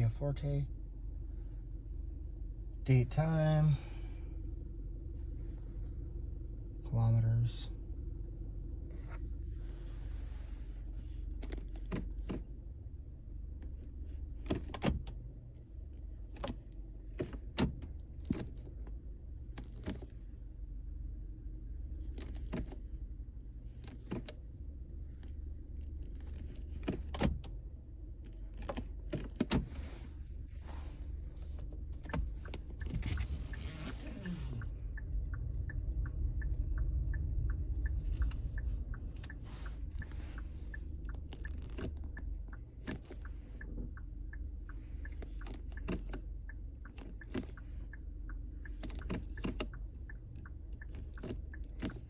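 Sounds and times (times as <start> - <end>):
car engine idling: 0.0 - 52.0
gear shift clicks and knocks: 11.2 - 12.7, 13.5 - 20.4, 21.9 - 52.0.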